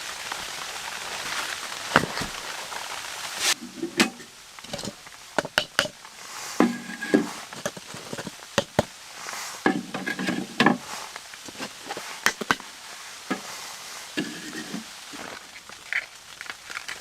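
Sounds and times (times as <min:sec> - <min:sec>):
sharp knocks and clatter: 0:03.9 - 0:06.0, 0:06.6 - 0:08.9.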